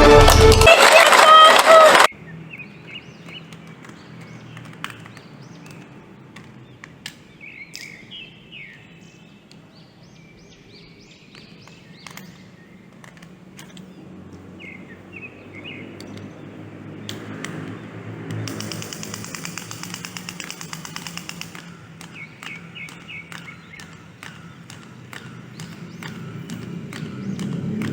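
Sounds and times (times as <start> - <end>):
birds chirping: 0.9 - 27.9
sharp clicks: 2.9 - 8.2, 11.3 - 14.4, 16.0 - 16.4, 17.0 - 27.9.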